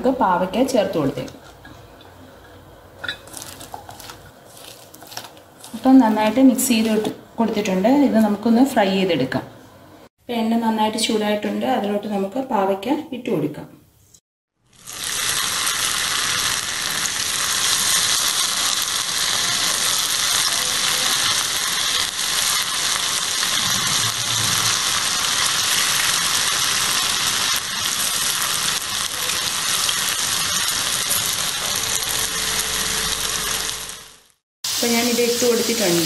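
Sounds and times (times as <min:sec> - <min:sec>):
hot oil sizzling: 0:14.6 - 0:36.0.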